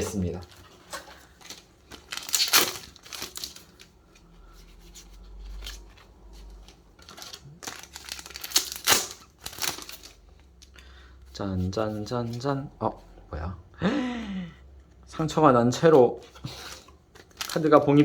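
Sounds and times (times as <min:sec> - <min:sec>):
wrapper tearing and crinkling: 0:00.0 - 0:03.9, 0:05.2 - 0:10.3, 0:17.2 - 0:18.0
wrapper rustling: 0:00.0 - 0:10.7, 0:15.8 - 0:18.0.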